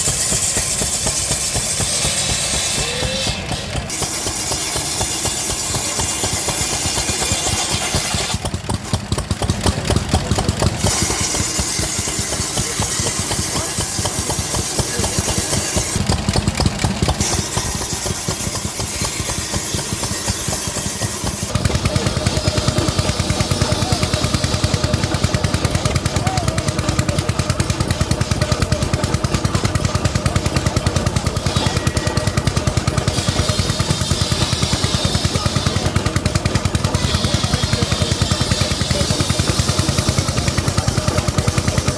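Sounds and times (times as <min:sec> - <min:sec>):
vintage engine running: 0:00.0 - 0:41.9.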